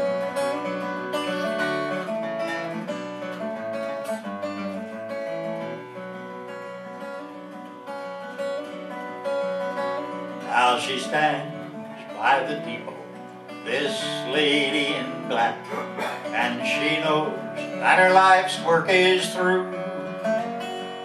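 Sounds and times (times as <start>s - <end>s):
acoustic guitar strumming and picking: 0.0s - 21.0s.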